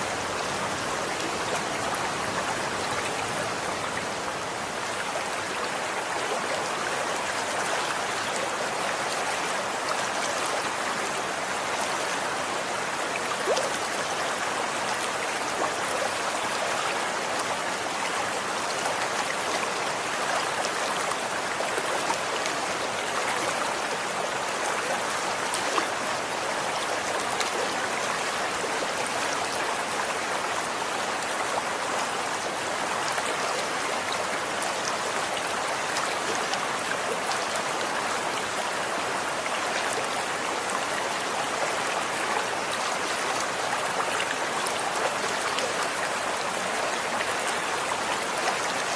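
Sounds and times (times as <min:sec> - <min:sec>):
stream water rushing: 0:00.0 - 0:48.9.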